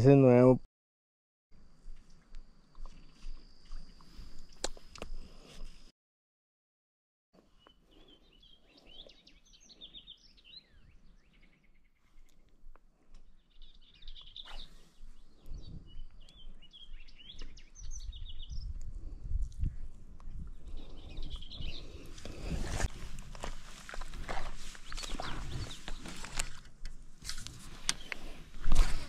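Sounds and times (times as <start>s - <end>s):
songbird chirping: 1.8s - 5.5s, 7.4s - 19.2s, 20.2s - 22.6s, 23.8s - 26.7s, 27.7s - 28.5s
low wind rumble: 13.5s - 29.0s.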